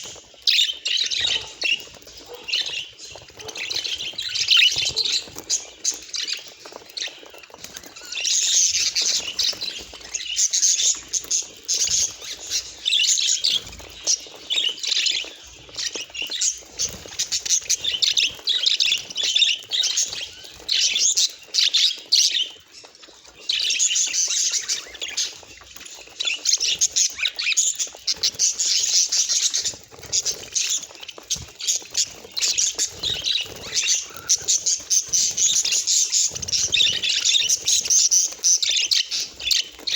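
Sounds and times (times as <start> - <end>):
budgerigar chattering and warbling: 1.0 - 2.8, 32.5 - 39.3.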